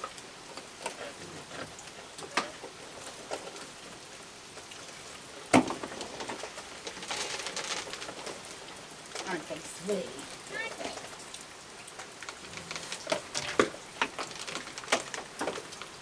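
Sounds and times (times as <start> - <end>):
steady rain falling: 0.0 - 16.0
small clicks and knocks: 11.9 - 16.0.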